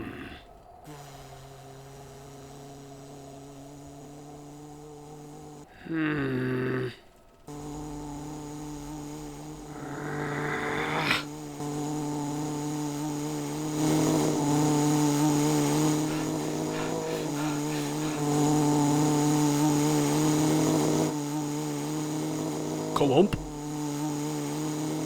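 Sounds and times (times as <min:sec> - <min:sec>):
person imitating engine drone: 0:00.0 - 0:00.5, 0:05.7 - 0:07.0, 0:07.6 - 0:11.8, 0:14.2 - 0:19.5, 0:22.9 - 0:23.7.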